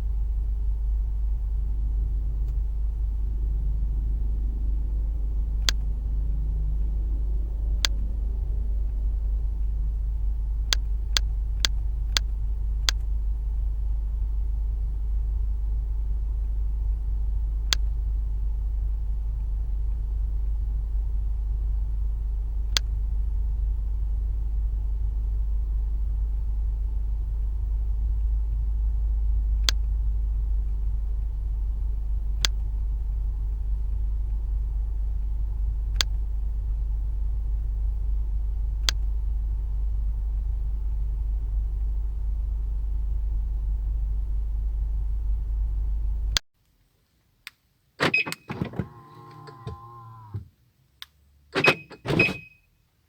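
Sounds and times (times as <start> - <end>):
low rumble: 0.0 - 46.4
sharp clicks: 5.6 - 5.9, 10.7 - 13.2, 17.6 - 18.0, 29.6 - 30.0, 32.4 - 32.7, 38.7 - 39.2
car alarm chirps: 48.0 - 48.6, 51.6 - 52.6
lock actuators clunking: 48.0 - 50.5, 51.6 - 52.5
small electric motor whirring: 48.7 - 50.4.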